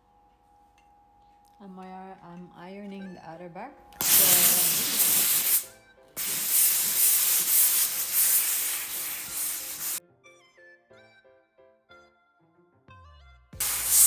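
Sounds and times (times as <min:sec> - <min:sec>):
steam iron hissing: 0:04.0 - 0:10.0, 0:13.6 - 0:14.0.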